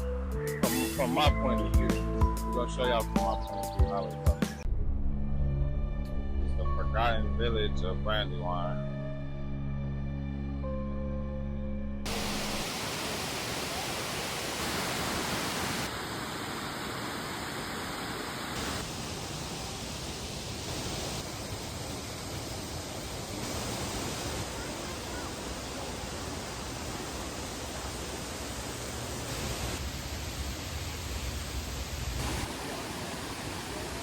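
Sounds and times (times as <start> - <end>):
waterfall rushing: 12.1 - 34.0.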